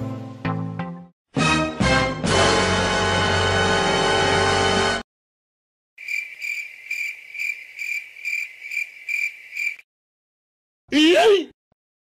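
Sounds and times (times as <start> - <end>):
cricket chirping: 6.0 - 9.8.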